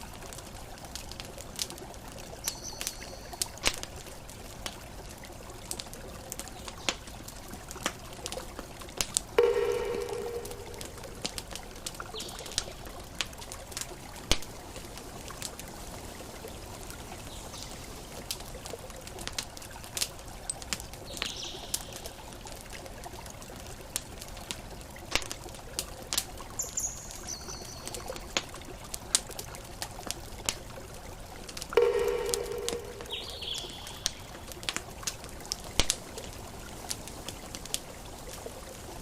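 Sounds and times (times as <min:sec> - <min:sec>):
campfire crackling and popping: 0:00.0 - 0:26.9, 0:27.6 - 0:39.0
bird calls: 0:31.8 - 0:34.4.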